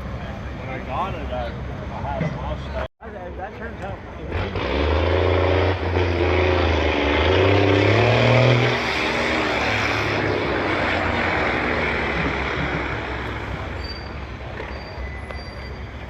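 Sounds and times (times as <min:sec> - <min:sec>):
engine and exhaust rush: 0:00.0 - 0:16.0
car engine revving: 0:04.2 - 0:13.8.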